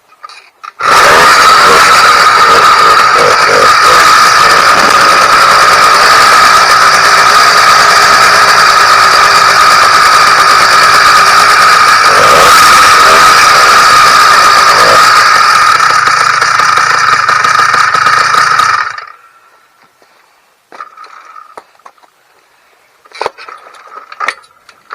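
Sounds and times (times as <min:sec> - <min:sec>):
two-stroke engine high revs: 0:00.7 - 0:19.4, 0:20.8 - 0:21.6.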